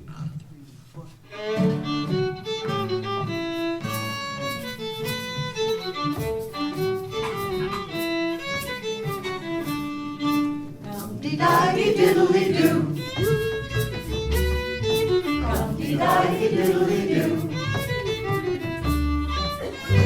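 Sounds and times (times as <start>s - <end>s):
string accompaniment: 1.3s - 20.0s
fiddle playing quick melody: 1.4s - 20.0s
voices singing: 10.8s - 18.3s.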